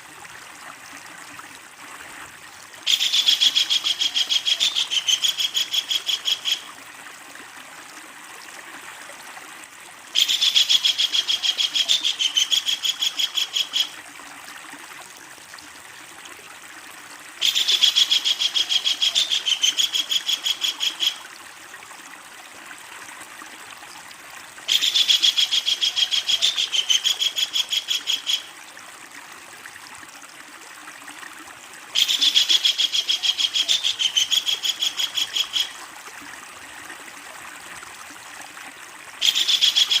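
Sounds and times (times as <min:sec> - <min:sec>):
kingfisher rattling call: 0:32.0 - 0:35.8, 0:39.2 - 0:40.0.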